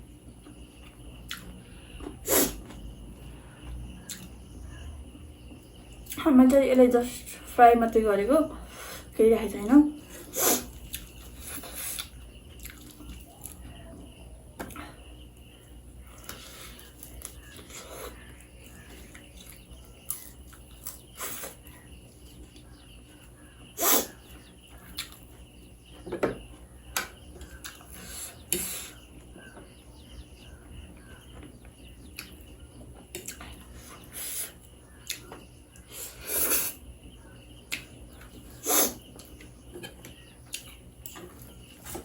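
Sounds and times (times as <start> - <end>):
chewing and mouth noises: 10.6 - 13.6, 24.8 - 25.3.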